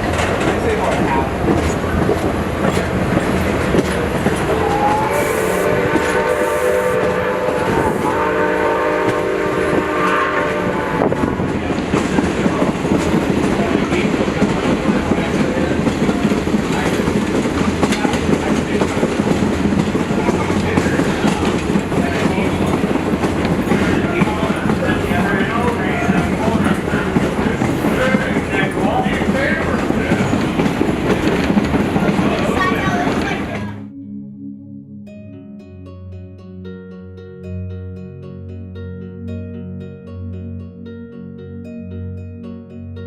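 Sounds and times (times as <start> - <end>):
train wheels rumbling on rails: 0.0 - 33.8
steam locomotive whistle: 4.5 - 11.4.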